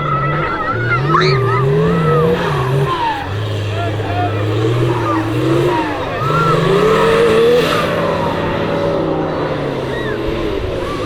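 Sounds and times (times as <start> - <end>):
engine revving hard: 0.0 - 11.0.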